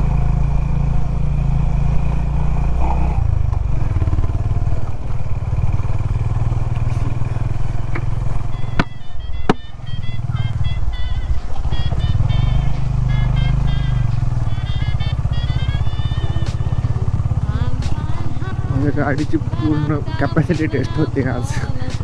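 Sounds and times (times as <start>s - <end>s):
motorcycle engine throb: 0.0s - 22.0s
sharp clicks: 16.3s - 18.5s.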